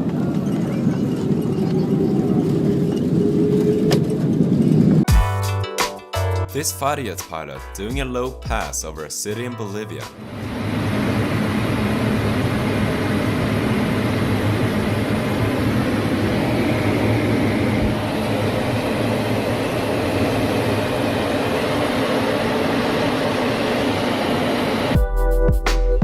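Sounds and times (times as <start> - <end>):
fighter jet engine rumble: 0.0 - 5.1, 10.2 - 25.0.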